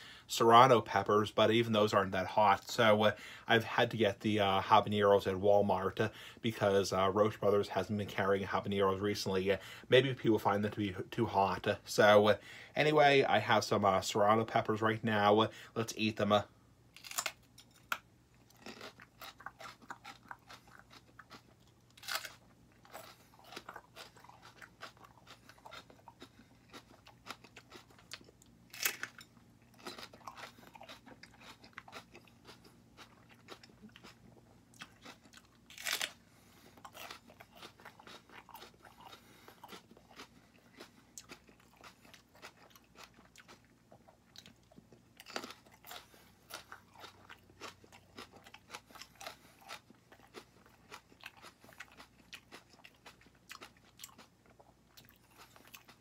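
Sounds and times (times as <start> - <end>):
person crunching peppers: 16.9 - 56.0.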